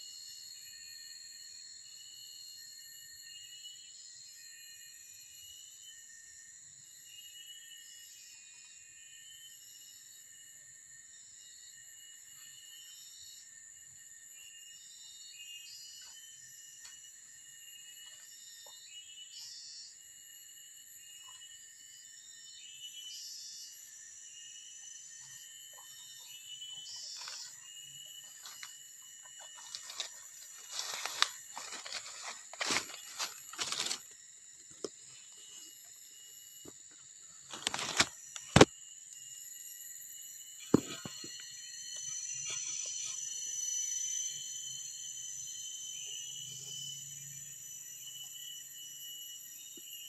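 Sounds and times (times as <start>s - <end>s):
insects chorus: 0.0s - 50.0s.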